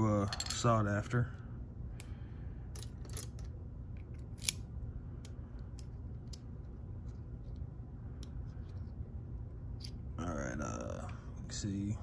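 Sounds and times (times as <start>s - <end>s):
small metal lock parts clicking: 2.7s - 4.7s.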